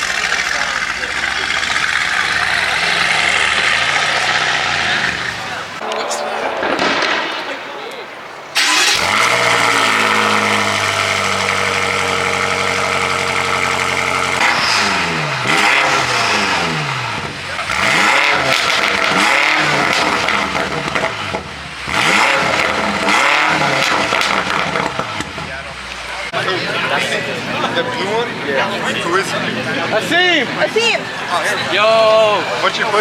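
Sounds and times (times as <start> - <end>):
car engine revving: 0.0 - 7.3, 8.5 - 26.4.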